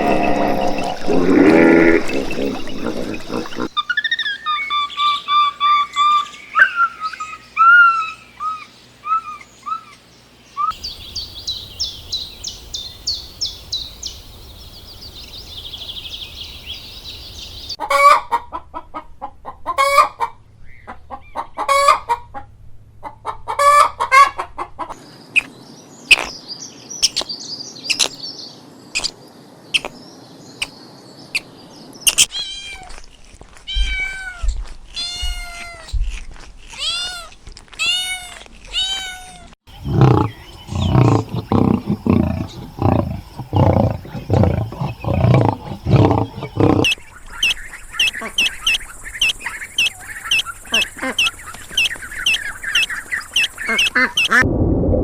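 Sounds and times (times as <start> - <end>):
chickens clucking: 0.0 - 3.7, 20.9 - 22.2, 23.0 - 25.0, 39.8 - 47.0
small birds chirping: 0.0 - 17.8, 25.0 - 33.1, 39.7 - 54.4
high bird twittering: 39.7 - 54.4.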